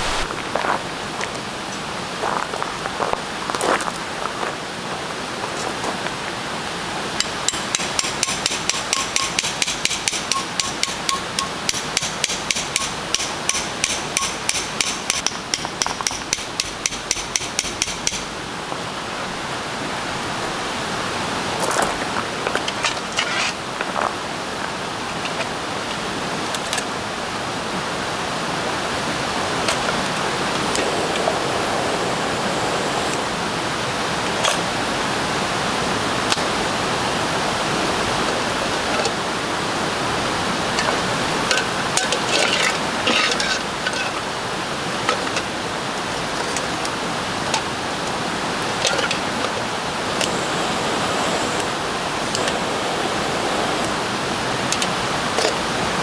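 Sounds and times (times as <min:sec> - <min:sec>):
steady hiss: 0:00.0 - 0:01.1, 0:29.0 - 0:34.2, 0:48.2 - 0:56.0.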